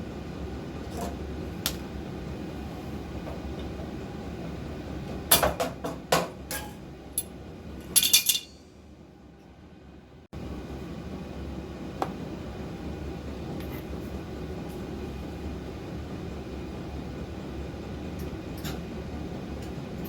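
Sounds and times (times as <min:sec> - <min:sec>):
steady hum: 0:00.0 - 0:20.0
metal objects clinking: 0:07.9 - 0:08.6.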